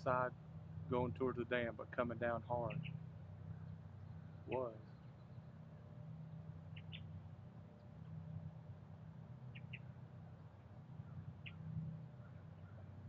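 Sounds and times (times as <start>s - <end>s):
steady low hum: 0.0s - 13.0s
high-pitched bird chirps: 4.5s - 4.8s, 6.7s - 7.1s.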